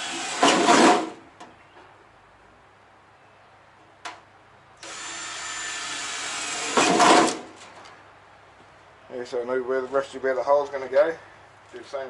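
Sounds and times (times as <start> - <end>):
electric drill boring: 4.8 - 7.4.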